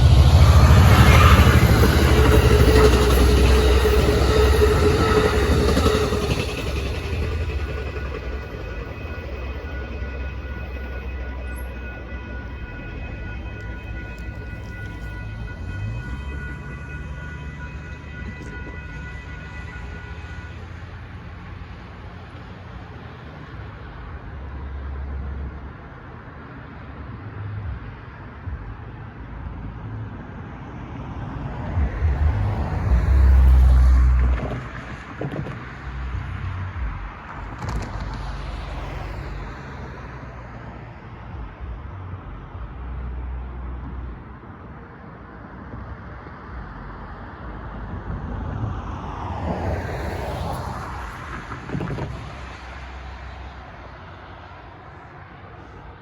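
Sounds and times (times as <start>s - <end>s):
train rolling past: 0.0s - 24.3s, 31.1s - 42.1s, 45.1s - 56.0s
wind buffeting microphone: 45.7s - 53.6s.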